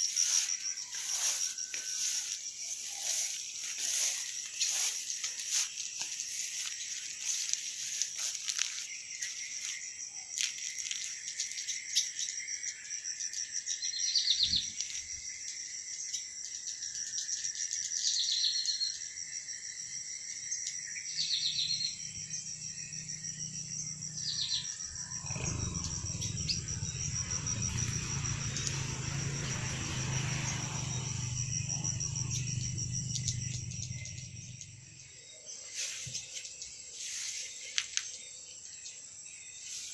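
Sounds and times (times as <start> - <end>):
high insect drone: 0.0 - 39.9
low rumbling hum: 24.8 - 35.1.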